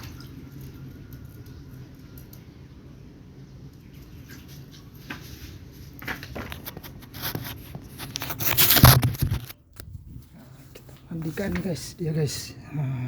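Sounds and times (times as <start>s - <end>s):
rustling and scuffling: 4.3s - 11.8s.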